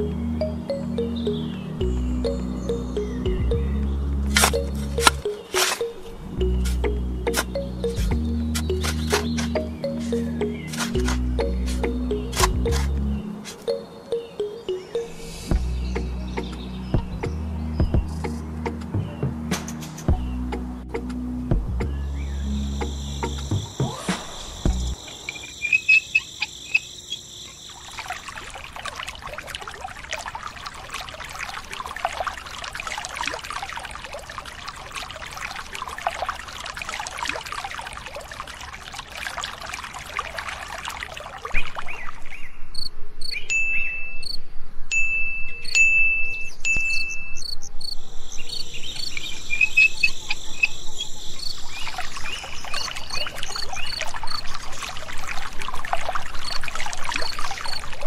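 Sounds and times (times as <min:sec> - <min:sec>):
steady chirping: 0:00.0 - 0:18.4
water trickling into sand: 0:04.3 - 0:13.8, 0:25.0 - 0:42.4, 0:48.5 - 0:58.0.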